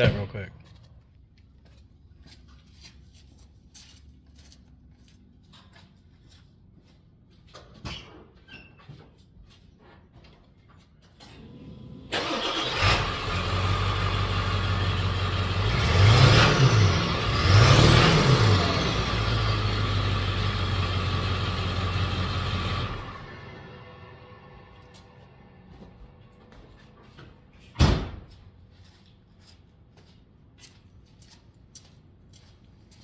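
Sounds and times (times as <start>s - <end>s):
diesel engine starting and revving: 11.3s - 25.8s.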